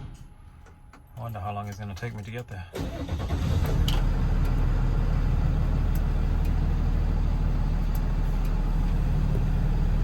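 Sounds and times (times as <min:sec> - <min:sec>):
truck engine idling: 0:02.8 - 0:10.0.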